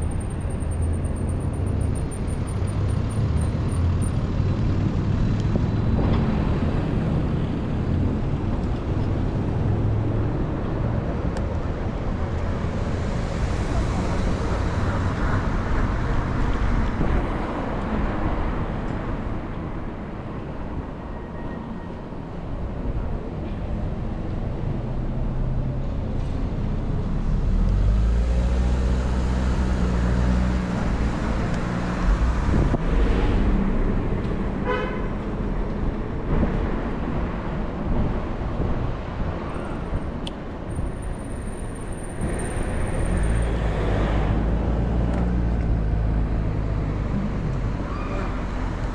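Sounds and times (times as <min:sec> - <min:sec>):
road and traffic noise: 0:00.0 - 0:48.9
bus engine droning: 0:40.7 - 0:48.9.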